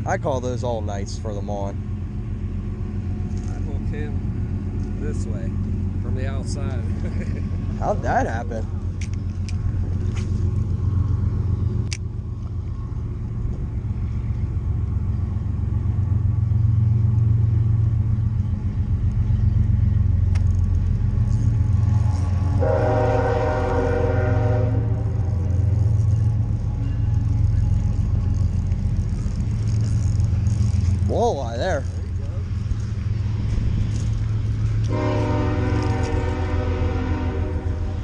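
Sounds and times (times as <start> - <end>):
steady low rumble: 0.0 - 38.0
horn blast: 22.5 - 25.7, 34.8 - 38.0.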